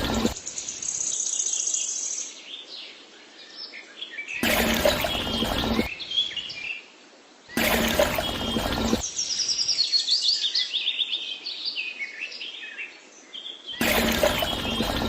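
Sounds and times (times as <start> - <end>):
birds chirping: 0.0 - 2.0, 7.5 - 10.7, 13.5 - 15.0
loud sound clip: 4.4 - 5.9, 7.6 - 9.1, 13.8 - 15.0.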